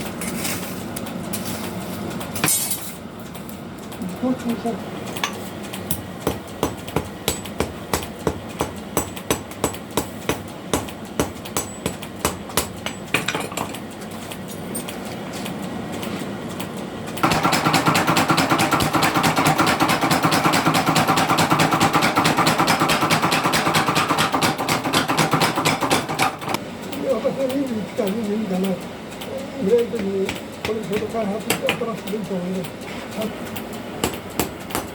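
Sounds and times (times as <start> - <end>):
hammer striking steel on anvil: 5.2 - 13.7, 17.2 - 26.4, 34.0 - 34.9
forge machine rapid strokes: 17.2 - 33.5.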